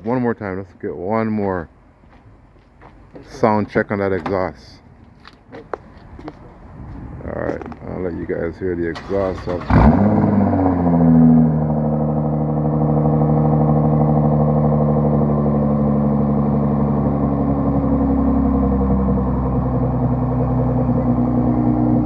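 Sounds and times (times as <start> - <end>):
car engine idling: 7.2 - 22.0.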